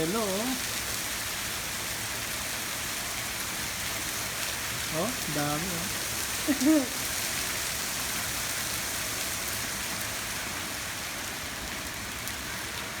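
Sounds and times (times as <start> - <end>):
heavy hail hissing: 4.3 - 7.9.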